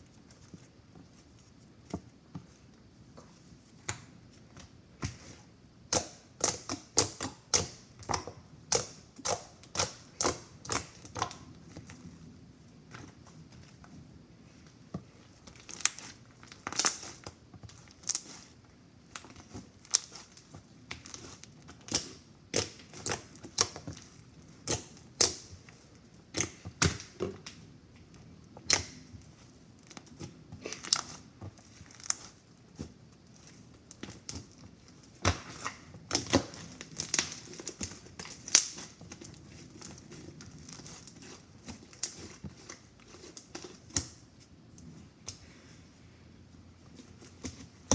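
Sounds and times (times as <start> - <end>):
slime popping and crackling: 15.6 - 18.5, 33.5 - 44.1.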